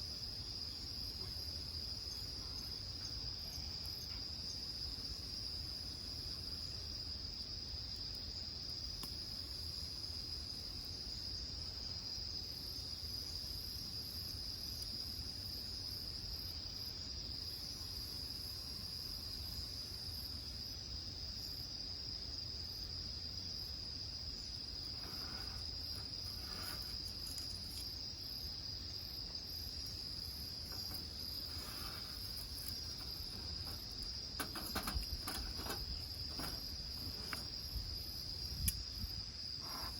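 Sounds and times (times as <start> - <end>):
insect high trill: 24.4 - 39.9.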